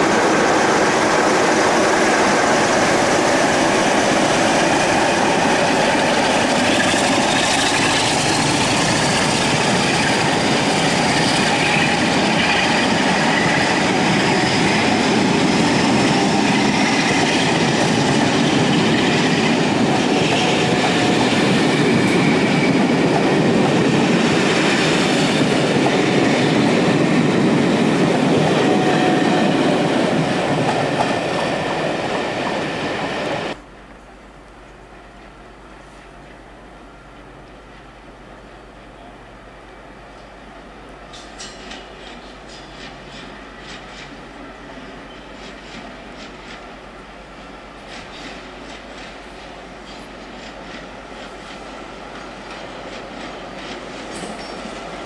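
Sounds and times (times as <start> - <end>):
train wheels clattering over rail joints: 2.2 - 33.0, 41.1 - 44.3, 47.8 - 55.0
faint high wheel squeal: 41.1 - 46.1.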